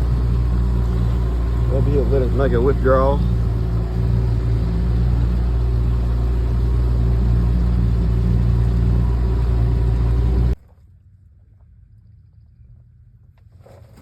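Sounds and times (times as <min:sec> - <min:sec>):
boat motor running: 0:00.0 - 0:10.6.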